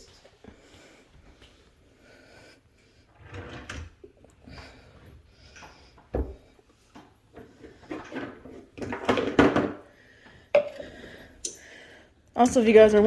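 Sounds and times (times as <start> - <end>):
containers and utensils knocking: 10.6 - 10.8.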